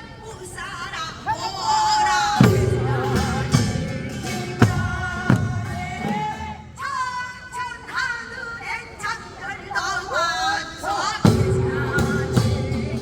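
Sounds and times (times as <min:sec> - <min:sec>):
person singing folk song: 0:00.0 - 0:13.0
heavy drum strikes: 0:02.4 - 0:06.8, 0:11.3 - 0:13.0.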